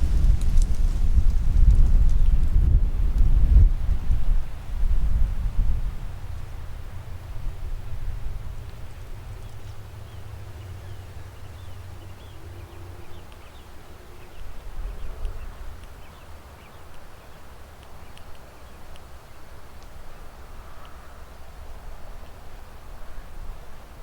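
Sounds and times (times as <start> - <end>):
wind buffeting microphone: 0.0 - 16.4.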